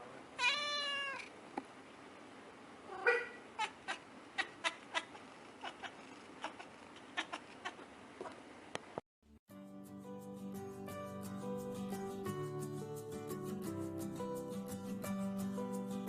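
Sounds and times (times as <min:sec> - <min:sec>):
cat meowing: 0:00.4 - 0:01.3, 0:02.9 - 0:07.8.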